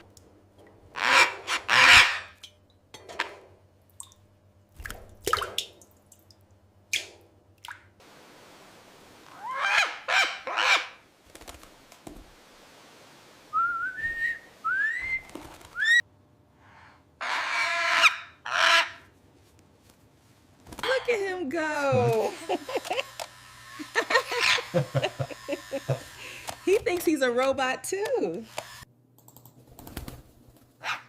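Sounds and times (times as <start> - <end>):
parrot squawking: 1.0 - 2.4, 9.3 - 11.0, 17.2 - 19.1, 24.0 - 24.8
parrot whistling: 13.5 - 15.2.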